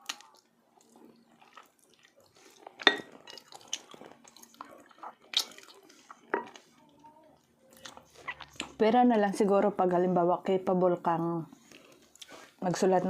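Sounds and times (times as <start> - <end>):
wet mouth chewing sounds: 0.0 - 8.8, 11.6 - 12.6
dishware clinking: 2.8 - 3.2.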